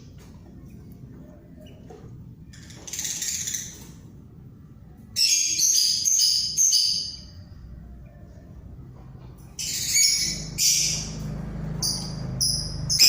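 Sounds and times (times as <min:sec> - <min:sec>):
shrill piping bird calls: 0:05.2 - 0:07.4, 0:09.6 - 0:11.2, 0:11.8 - 0:13.0.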